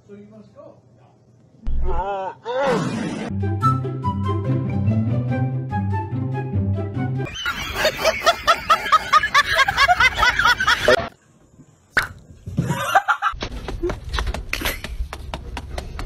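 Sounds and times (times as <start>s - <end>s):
person laughing hard: 7.3s - 11.0s, 12.6s - 13.4s.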